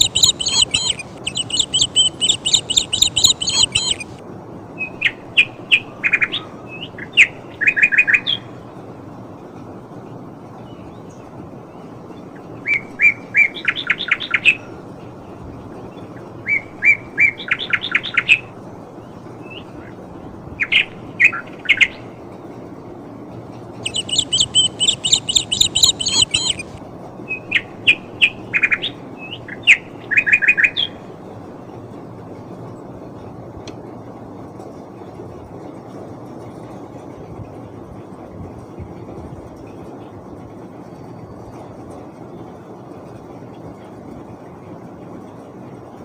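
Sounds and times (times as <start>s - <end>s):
high bird twittering: 0.0s - 4.2s, 23.8s - 26.8s
small birds chirping: 0.0s - 4.2s, 23.8s - 26.8s
low background noise: 0.0s - 46.0s.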